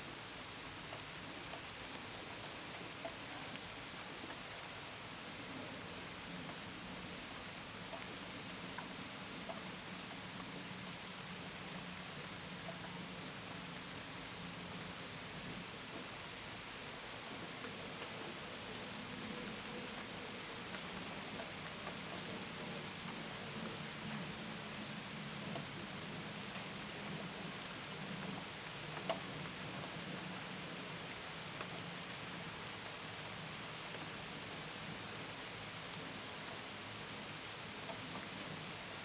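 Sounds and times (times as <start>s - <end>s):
rain hiss: 0.0s - 39.0s
crickets chirping: 0.1s - 1.7s, 7.1s - 8.0s, 8.7s - 24.7s, 25.4s - 27.6s.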